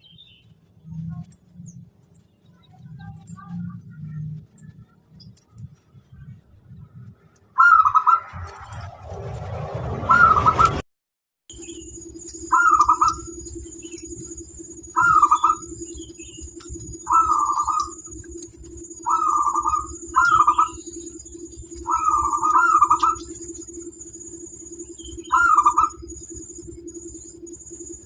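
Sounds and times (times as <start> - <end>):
steady low hum: 0.0 - 10.8, 11.5 - 28.0
dove cooing: 7.6 - 8.8, 10.0 - 10.8, 12.4 - 23.8, 25.0 - 26.4.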